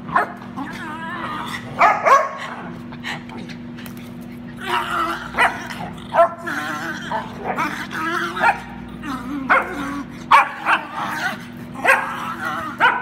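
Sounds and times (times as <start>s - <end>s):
dog whining grumbles: 0.5s - 13.0s
dog yipping: 11.8s - 13.0s.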